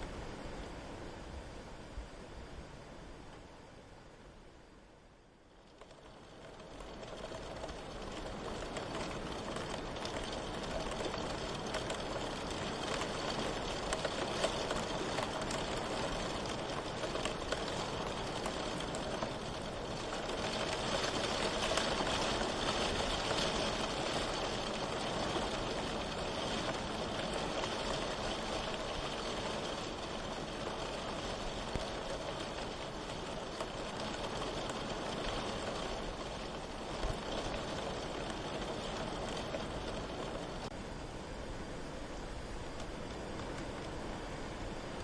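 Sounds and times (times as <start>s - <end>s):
steady rain falling: 0.0s - 45.0s.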